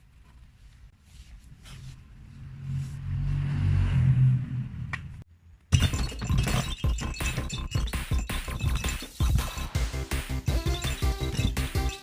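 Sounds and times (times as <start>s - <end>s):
low vehicle rumble: 1.9s - 5.3s.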